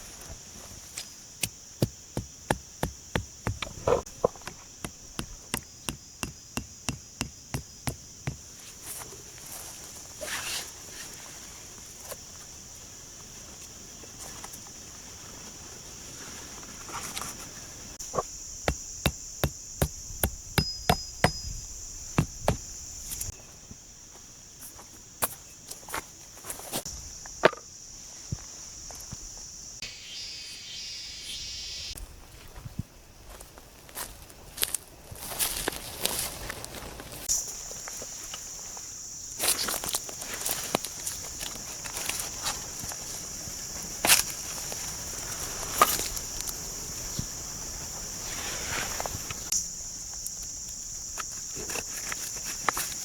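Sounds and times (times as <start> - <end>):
high drone of insects: 0.0 - 53.0
wood being struck: 1.8 - 8.4, 18.1 - 22.7.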